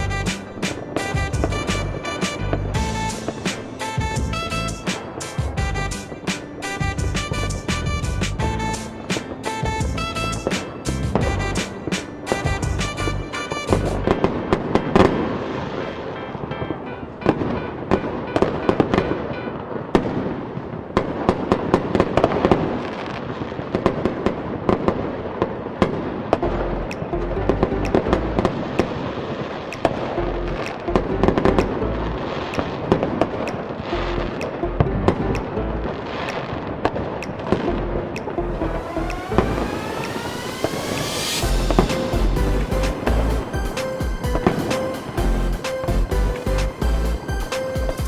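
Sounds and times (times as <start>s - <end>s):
fireworks bangs and crackling: 0.0s - 16.2s, 39.3s - 48.0s
music playing: 0.0s - 20.2s, 26.4s - 48.0s.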